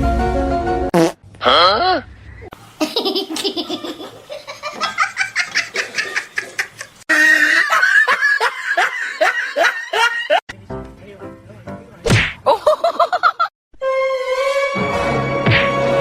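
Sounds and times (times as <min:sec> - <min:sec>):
high-pitched laughing: 0:02.8 - 0:10.4
person laughing: 0:02.8 - 0:10.4, 0:12.5 - 0:13.5.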